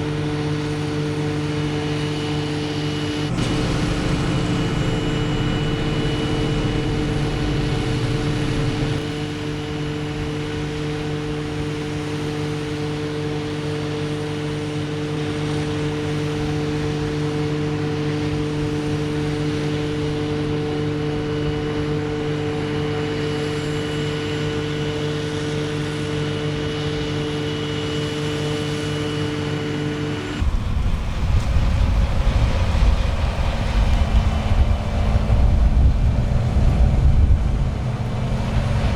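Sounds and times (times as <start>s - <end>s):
diesel engine running: 0.0s - 13.0s, 26.5s - 38.9s.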